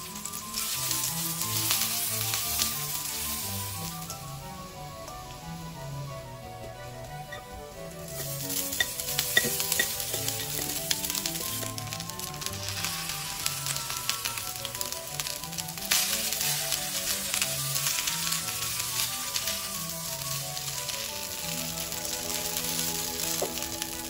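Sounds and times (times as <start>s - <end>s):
food sizzling in hot oil: 0.0s - 5.7s, 8.0s - 24.0s
spatula stirring in wok: 8.2s - 14.0s.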